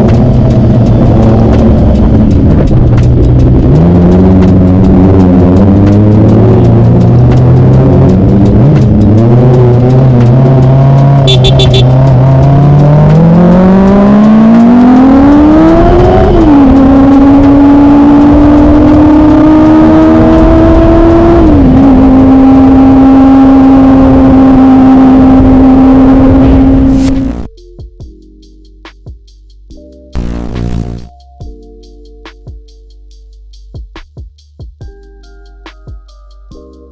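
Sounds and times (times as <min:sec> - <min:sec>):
motorcycle engine revving: 0:00.0 - 0:27.5, 0:30.2 - 0:31.1.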